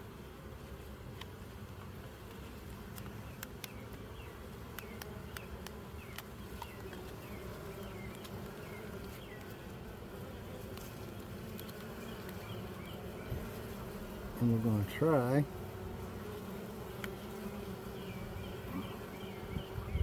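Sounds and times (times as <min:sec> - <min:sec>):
honeybees buzzing: 0:00.0 - 0:20.0
sharp clicks: 0:02.9 - 0:04.0, 0:04.7 - 0:07.0.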